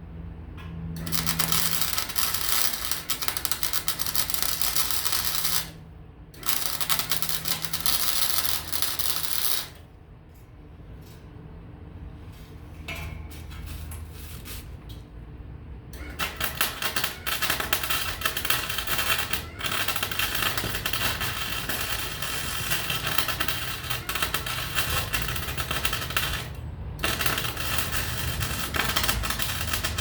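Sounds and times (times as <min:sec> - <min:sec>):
welding arc crackling: 0:01.0 - 0:05.8, 0:06.4 - 0:09.8, 0:16.0 - 0:30.0.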